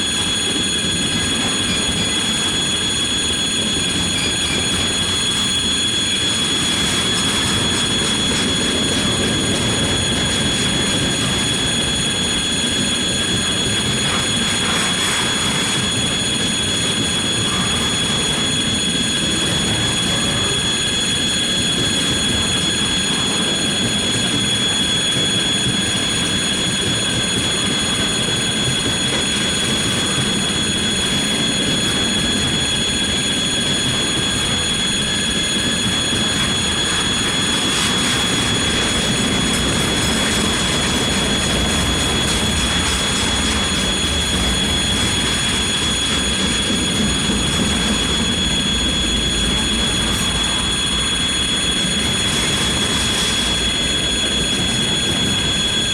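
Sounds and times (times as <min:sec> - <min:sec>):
freight train rolling past: 0:00.0 - 0:55.9
high-pitched rail whine: 0:25.2 - 0:55.9.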